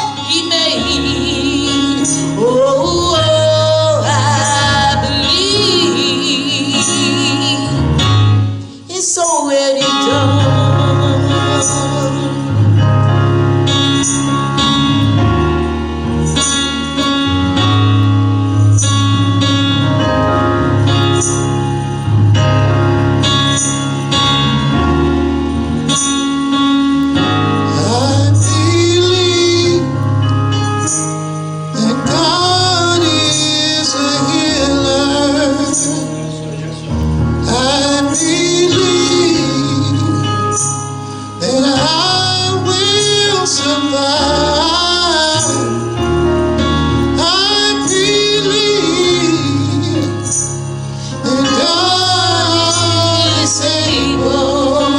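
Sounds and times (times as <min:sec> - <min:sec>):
bass line: 0:00.0 - 0:08.7, 0:10.0 - 0:54.9
sustained instrumental chords: 0:00.0 - 0:09.0, 0:09.6 - 0:54.9
singer with vibrato: 0:00.0 - 0:12.8, 0:47.2 - 0:54.9.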